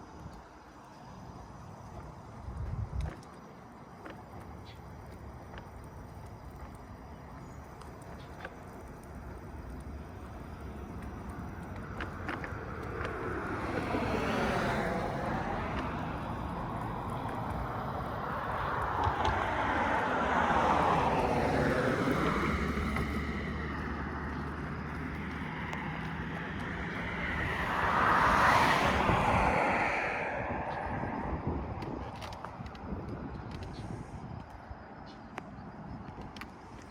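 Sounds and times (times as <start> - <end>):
street and road noise: 0.0 - 36.9
vehicles passing: 0.0 - 36.9
wind on the microphone: 1.9 - 3.3, 26.3 - 36.9.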